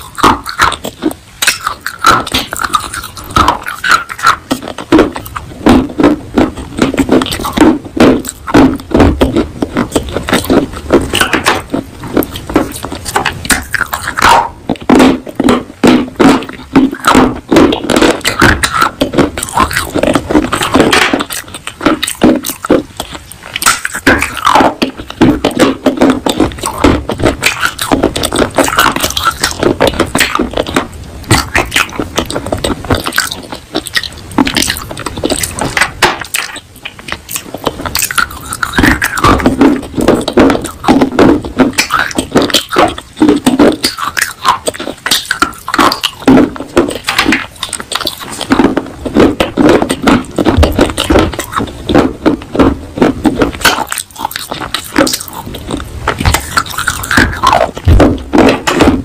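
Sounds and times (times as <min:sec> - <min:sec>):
chewing crunchy clay pieces: 0:00.0 - 0:59.0.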